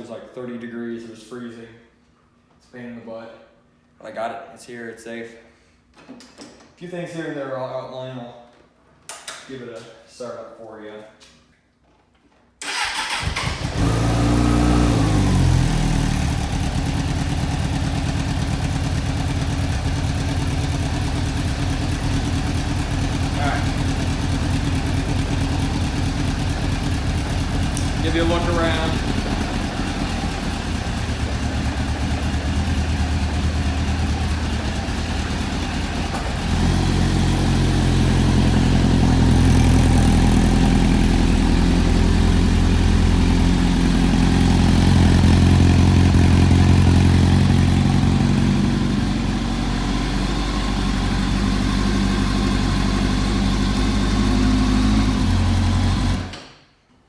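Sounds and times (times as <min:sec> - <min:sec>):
motorcycle engine running: 0:12.7 - 0:56.3.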